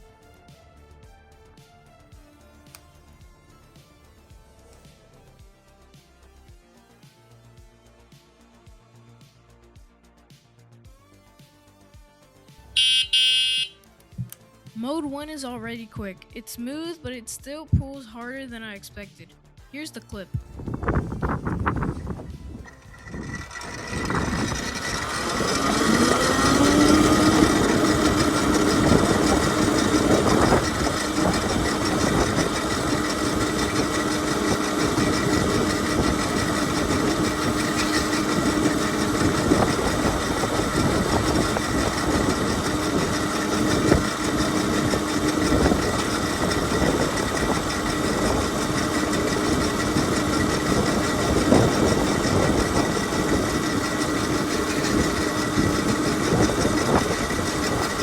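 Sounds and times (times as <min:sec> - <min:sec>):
electric motor whine: 0:12.8 - 0:13.7, 0:20.6 - 0:58.0
rough riding rumble: 0:20.4 - 0:58.0.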